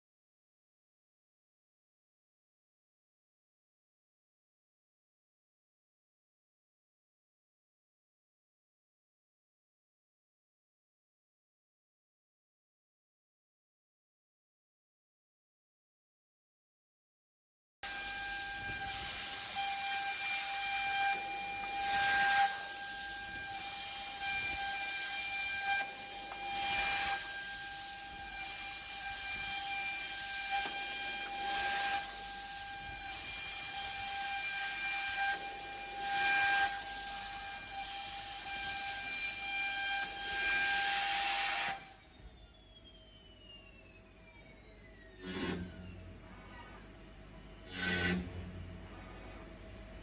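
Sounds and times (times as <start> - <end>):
router spindle high whine: 17.8 - 50.0
hiss of cutting wood: 17.9 - 39.0, 40.0 - 42.0.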